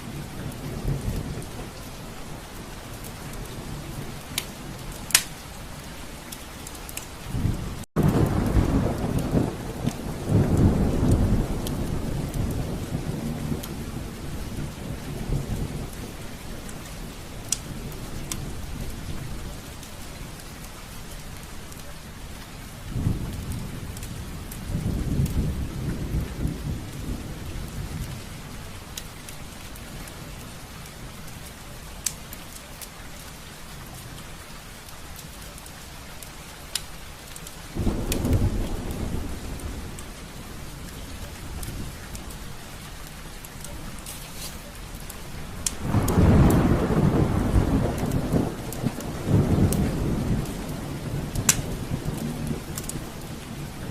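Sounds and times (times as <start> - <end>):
rain on a window: 0.0 - 53.9
low rolling thunder: 7.3 - 19.6, 22.7 - 29.0, 37.7 - 42.8, 45.2 - 53.9
raindrops tapping on glass: 45.0 - 53.3.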